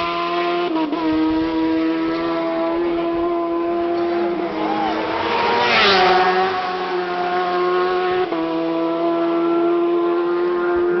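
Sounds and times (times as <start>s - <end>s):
motorbike passing at speed: 0.0s - 11.0s.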